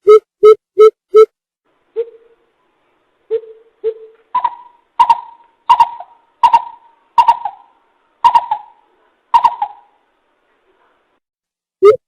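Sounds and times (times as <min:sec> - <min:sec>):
bird hooting calls: 0:03.3 - 0:10.0.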